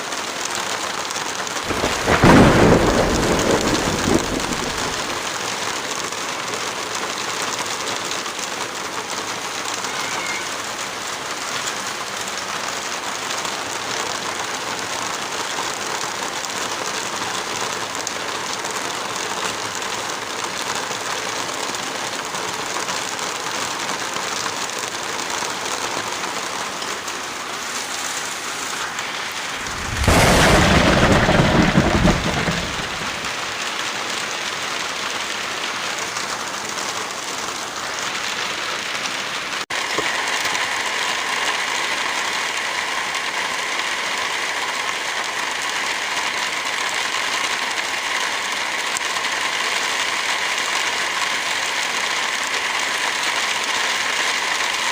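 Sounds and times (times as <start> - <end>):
heavy rain: 0.0 - 54.9
deep rush: 29.5 - 33.3.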